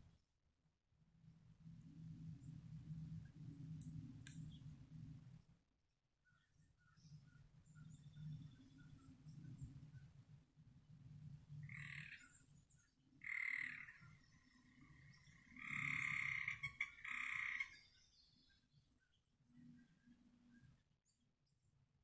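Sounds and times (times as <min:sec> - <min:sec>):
frog trilling: 0:11.7 - 0:12.2, 0:13.2 - 0:14.0, 0:15.6 - 0:17.8.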